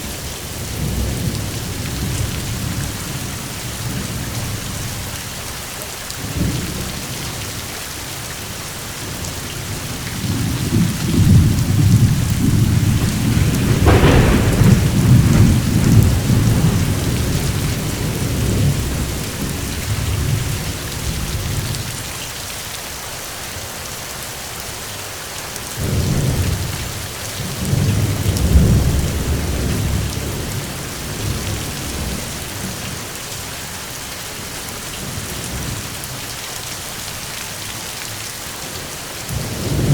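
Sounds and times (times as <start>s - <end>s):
steady rain hissing: 0.0s - 39.9s
rolling thunder: 9.7s - 21.9s, 25.8s - 33.0s, 39.3s - 39.9s.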